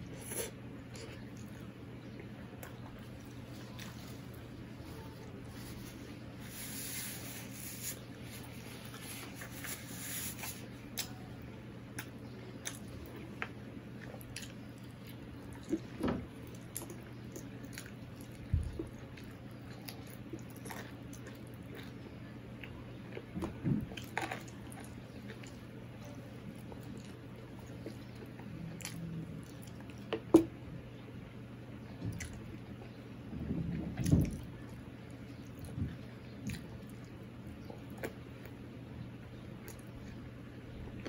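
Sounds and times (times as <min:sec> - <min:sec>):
steady low hum: 0:00.0 - 0:41.0
chewing and mouth smacks: 0:11.9 - 0:22.0, 0:32.1 - 0:32.9, 0:35.4 - 0:38.6, 0:39.6 - 0:40.2.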